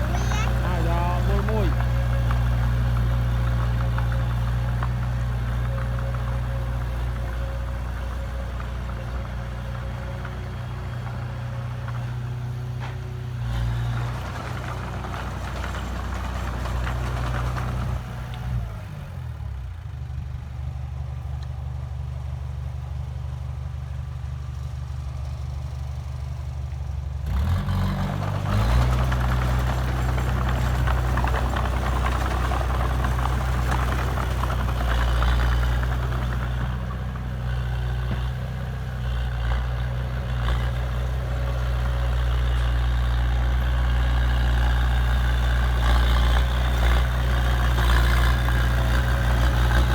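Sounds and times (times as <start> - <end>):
heavy diesel engine running: 0.0 - 49.9.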